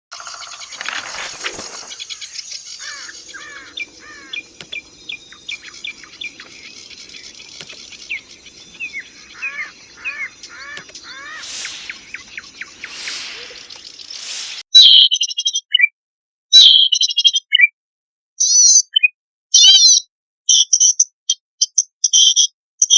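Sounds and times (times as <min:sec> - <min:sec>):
bird chirping: 0:00.2 - 0:14.9
sharp repeated bird notes: 0:00.2 - 0:15.0.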